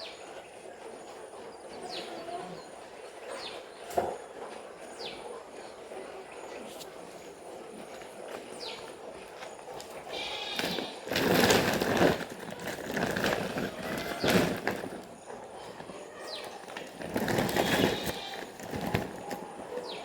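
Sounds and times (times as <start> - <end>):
rustling and clattering handling: 6.7 - 20.0
chicks peeping: 15.1 - 20.0.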